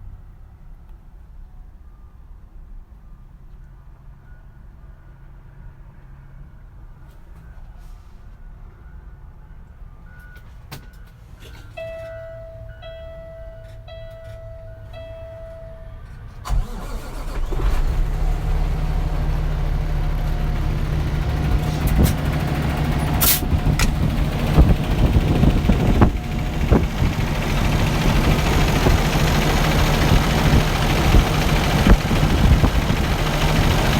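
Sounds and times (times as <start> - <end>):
diesel engine starting and idling: 11.6 - 33.9
brief high hiss: 23.2 - 23.4.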